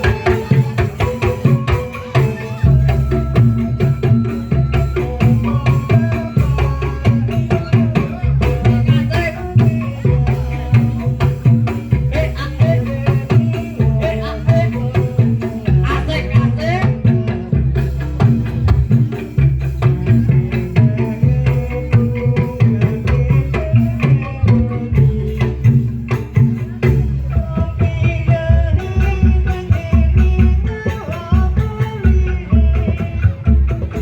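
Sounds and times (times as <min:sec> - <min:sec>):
wavering melody line: 0:00.0 - 0:25.2
driving drum beat: 0:00.0 - 0:34.0
heavy bass: 0:00.0 - 0:34.0.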